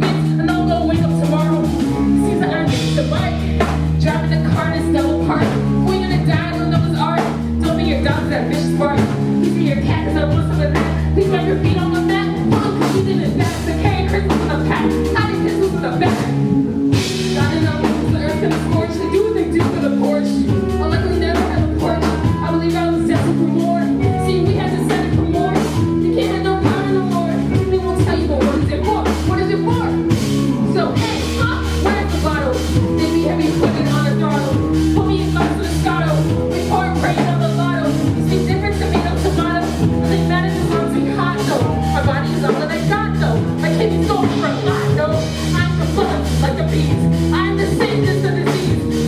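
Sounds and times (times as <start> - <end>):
bass and guitar: 0.0 - 49.0
drum beat: 24.1 - 49.0.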